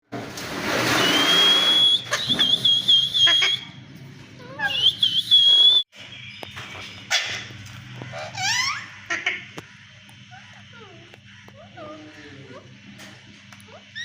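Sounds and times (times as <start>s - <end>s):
parakeet screeching and whistling: 0.9s - 3.8s, 4.4s - 5.8s, 8.1s - 9.3s, 13.7s - 14.0s.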